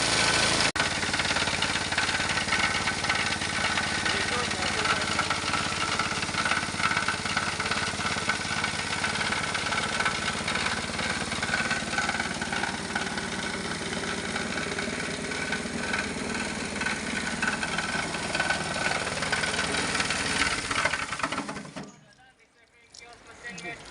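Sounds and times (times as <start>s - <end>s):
plastic shredder running: 0.0s - 21.9s.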